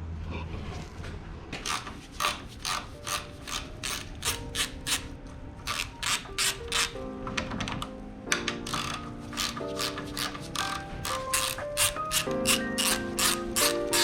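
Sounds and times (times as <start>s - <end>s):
ratchet wrench clicking: 1.6s - 7.0s, 8.6s - 14.0s.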